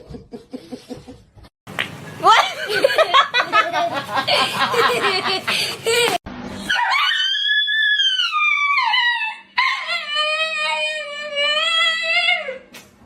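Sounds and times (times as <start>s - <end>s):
dog howling: 6.7s - 12.6s.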